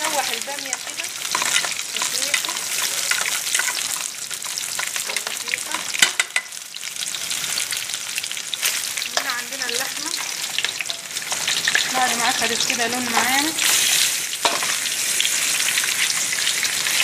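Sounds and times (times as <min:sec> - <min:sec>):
okra sizzling and crackling: 0:00.0 - 0:17.0.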